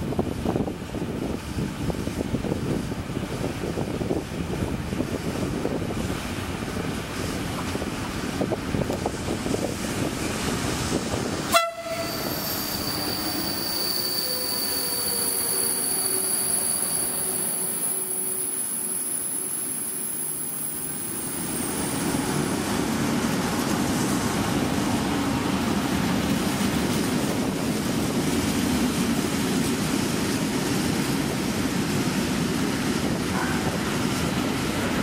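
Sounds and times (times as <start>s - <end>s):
freight wagons rumbling on rails: 0.0s - 35.0s
high wheel squeal: 11.8s - 21.9s.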